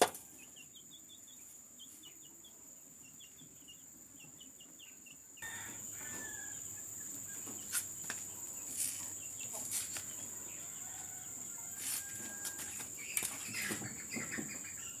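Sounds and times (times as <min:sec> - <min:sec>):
insects chirring: 0:00.0 - 0:15.0
chicken clucking: 0:03.2 - 0:15.0.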